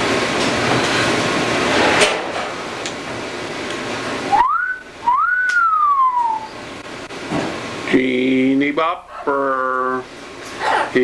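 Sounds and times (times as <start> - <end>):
steady background hiss: 0.0 - 11.0
two-note wolf whistle: 4.3 - 6.6.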